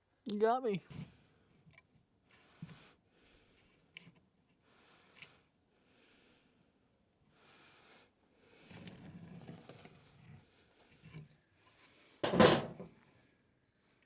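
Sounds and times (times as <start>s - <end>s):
loud wooden bump: 12.2s - 12.8s
plywood rubbing and knocking: 12.2s - 12.8s.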